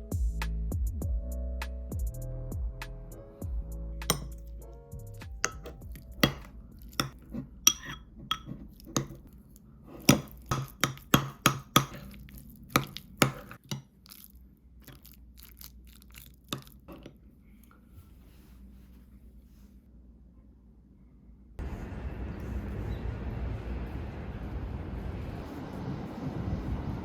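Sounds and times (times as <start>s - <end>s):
kitchenware clinking: 4.1s - 4.5s, 5.4s - 9.3s, 10.0s - 12.2s.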